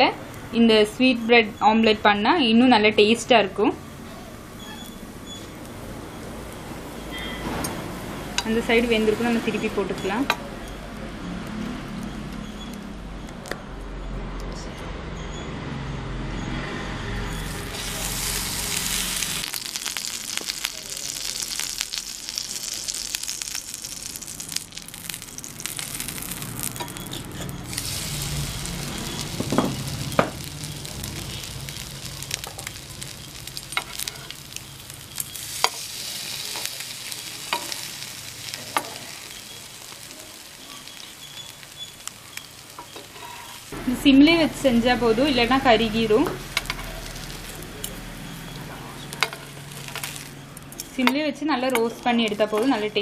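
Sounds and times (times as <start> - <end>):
bread sizzling in a pan: 17.3 - 51.1.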